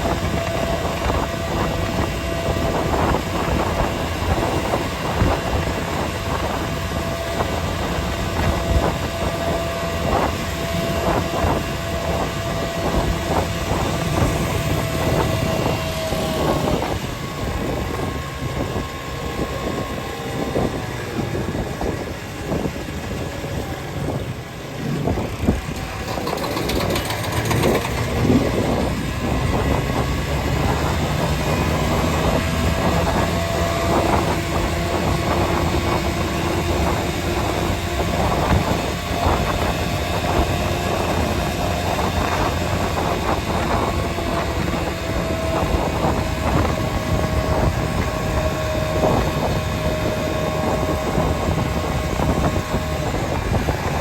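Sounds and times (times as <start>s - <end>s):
vehicle engine and road rumble: 0.0s - 54.0s
knocks and rattles: 25.4s - 29.5s.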